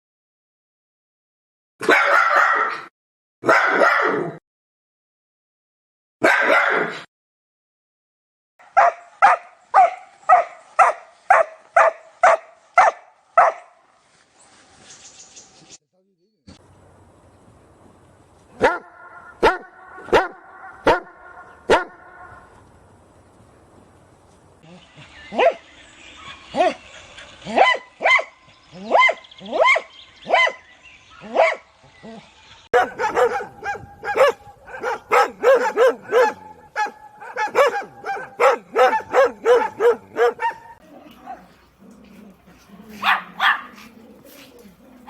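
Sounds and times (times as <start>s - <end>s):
dog barking: 1.8s - 4.2s, 6.2s - 7.0s, 8.6s - 13.8s, 18.6s - 22.5s, 25.4s - 25.6s, 27.5s - 30.6s, 31.2s - 31.7s, 32.7s - 41.6s, 42.6s - 45.0s.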